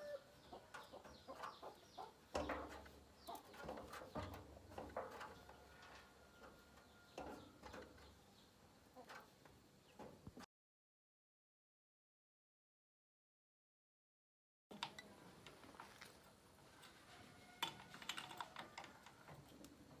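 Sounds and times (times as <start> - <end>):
chickens clucking: 0.0 - 10.2.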